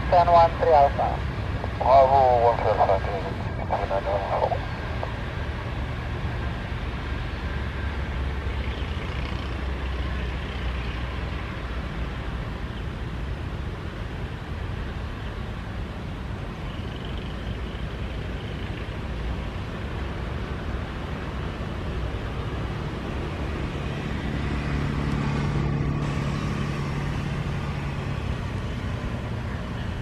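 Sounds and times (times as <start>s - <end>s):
jet engines rumbling: 0.0s - 9.0s, 9.6s - 30.0s
faint high whine: 1.8s - 5.2s.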